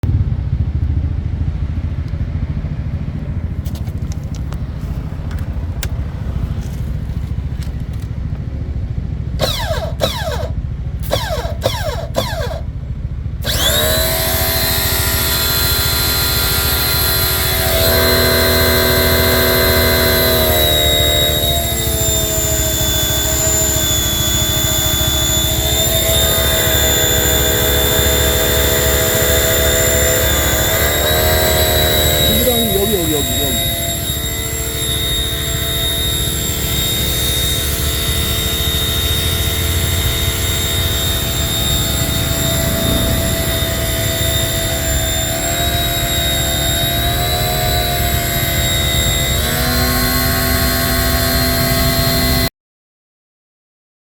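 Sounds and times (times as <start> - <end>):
low hum: 0.0 - 52.0
pressure washer motor whine: 3.2 - 52.5.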